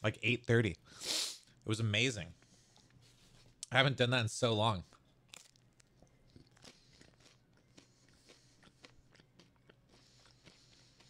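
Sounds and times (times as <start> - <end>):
faint chewing: 4.9 - 11.0.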